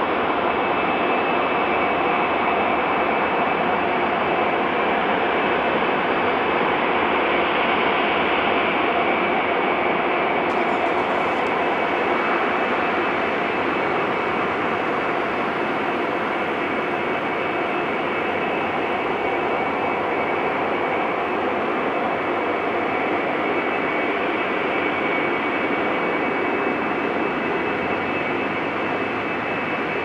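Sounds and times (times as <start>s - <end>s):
jet engines roaring: 10.4s - 30.0s
high engine whine: 10.5s - 30.0s.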